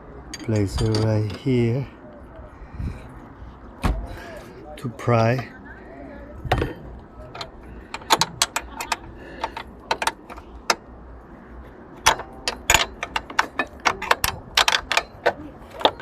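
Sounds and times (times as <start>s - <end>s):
hand tools clicking on metal: 7.4s - 10.8s, 12.0s - 16.0s.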